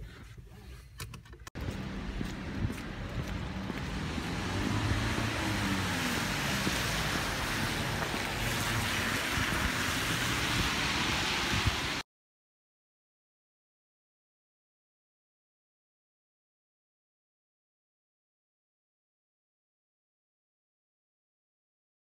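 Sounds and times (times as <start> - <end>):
vehicle road noise: 1.3 - 12.0.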